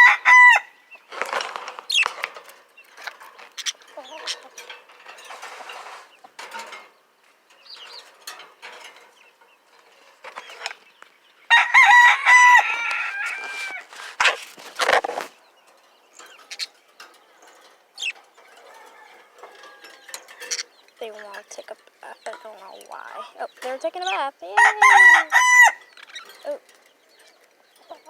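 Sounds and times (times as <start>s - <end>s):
budgerigars chirping: 1.8s - 4.6s, 14.2s - 19.6s, 20.2s - 28.0s.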